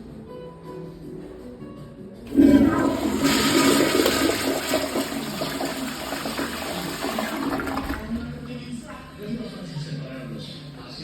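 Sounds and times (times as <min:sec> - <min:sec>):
toilet flushing: 0:02.3 - 0:08.7.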